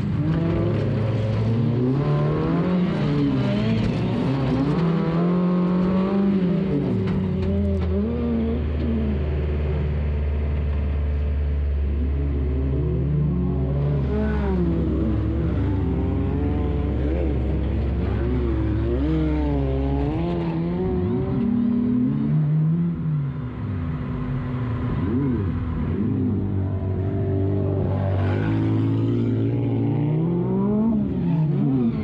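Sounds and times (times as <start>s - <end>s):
race car engine revving: 0.0s - 32.0s.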